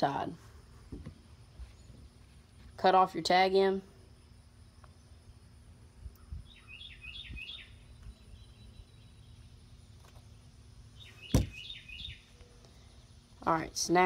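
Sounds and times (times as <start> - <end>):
bird chirping: 6.0 - 13.6
sharp knock: 11.3 - 11.6.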